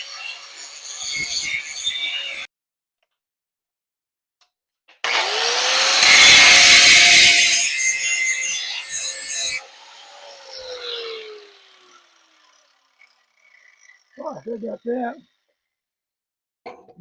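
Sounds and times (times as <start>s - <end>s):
grinding steel rasp: 0.0s - 2.5s, 5.1s - 15.4s
power grinder motor whine: 5.0s - 15.5s.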